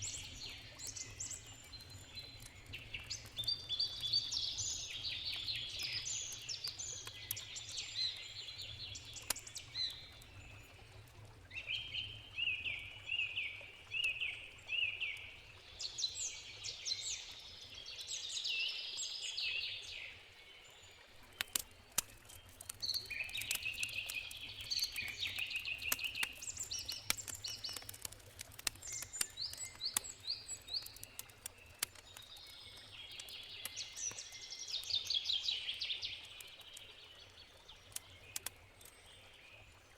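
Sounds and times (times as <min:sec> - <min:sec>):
campfire crackling: 0:00.0 - 0:12.2, 0:21.1 - 0:39.0
songbirds singing: 0:00.0 - 0:39.9.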